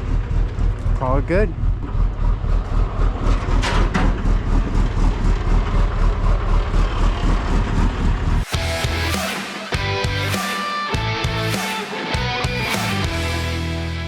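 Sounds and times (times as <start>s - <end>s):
truck engine idling: 0.0s - 9.2s.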